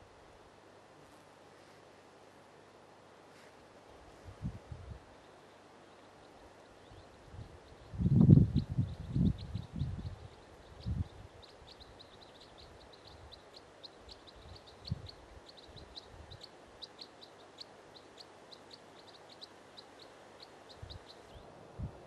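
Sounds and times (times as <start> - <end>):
soft background hiss: 0.0 - 22.0
small bird chirping: 5.2 - 21.5.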